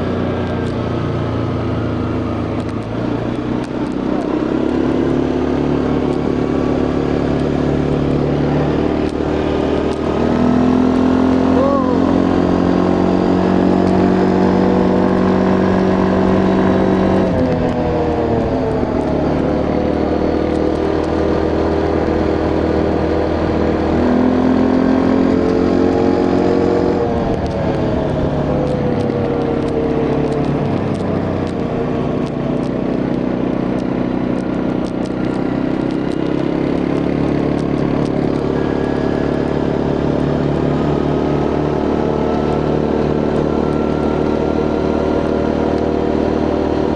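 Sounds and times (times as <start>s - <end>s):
quad bike engine running: 0.0s - 46.9s
road and wind noise: 0.0s - 46.9s.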